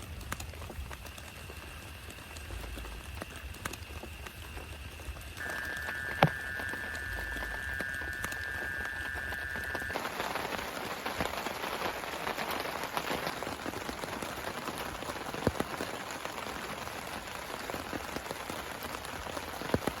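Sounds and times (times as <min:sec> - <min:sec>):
steady rain: 0:00.0 - 0:20.0
low hum: 0:05.1 - 0:10.6
steady high tone: 0:05.4 - 0:10.6
loud single raindrops: 0:05.4 - 0:20.0.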